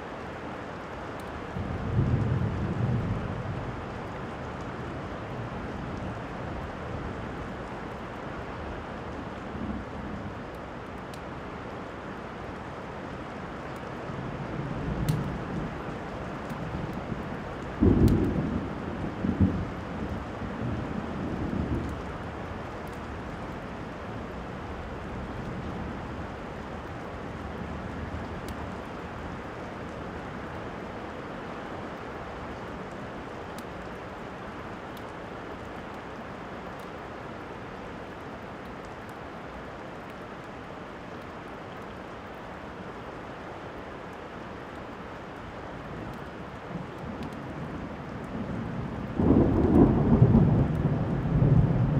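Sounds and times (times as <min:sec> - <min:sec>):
steady rain: 0:00.0 - 0:51.9
thunder rumble: 0:16.8 - 0:22.0, 0:46.7 - 0:51.9
fireplace crackles: 0:31.9 - 0:47.5.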